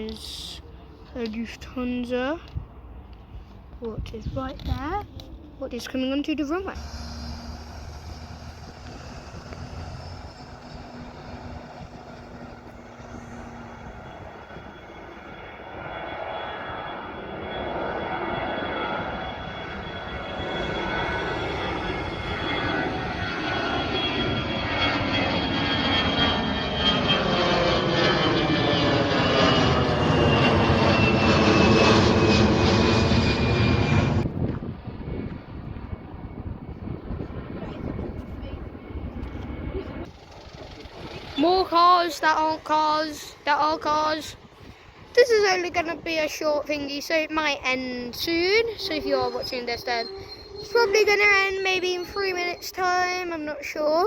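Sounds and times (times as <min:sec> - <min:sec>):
jet engines at takeoff: 0:00.0 - 0:54.0.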